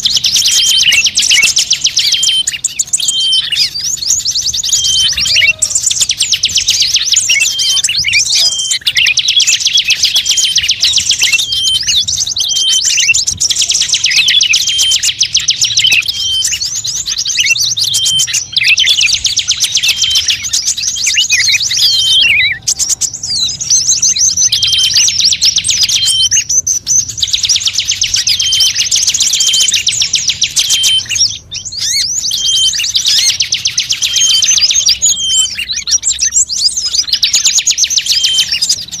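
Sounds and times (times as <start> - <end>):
songbirds chattering trill: 0.0 - 39.0.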